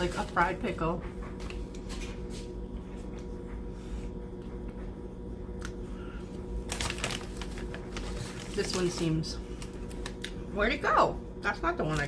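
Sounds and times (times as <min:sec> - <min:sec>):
faint steady hum: 0:00.0 - 0:12.0
chip bag crinkling: 0:06.5 - 0:10.4.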